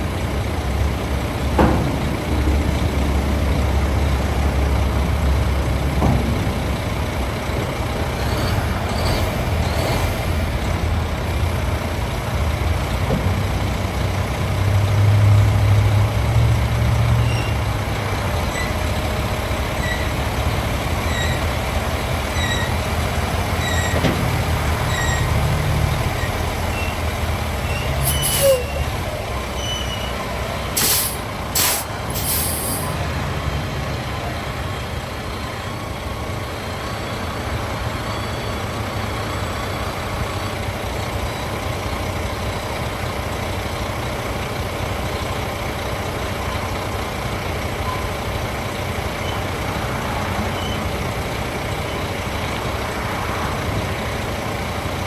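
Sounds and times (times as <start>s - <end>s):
diesel truck engine running: 0.0s - 55.0s
air brake hisses: 27.8s - 28.9s, 29.9s - 33.0s.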